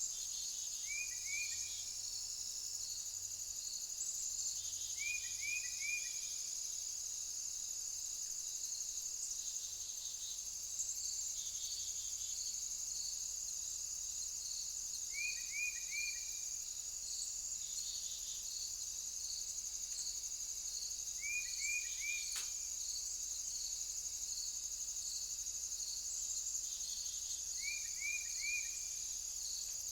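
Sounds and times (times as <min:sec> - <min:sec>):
crickets trilling: 0:00.0 - 0:29.9
sharp click: 0:22.3 - 0:22.6.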